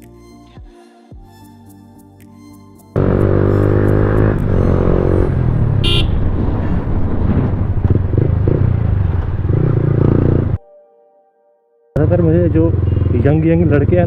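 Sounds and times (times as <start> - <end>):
motorcycle engine revving: 3.0 - 10.6, 12.0 - 14.0
vehicle horn toot: 5.7 - 6.3, 12.8 - 13.3.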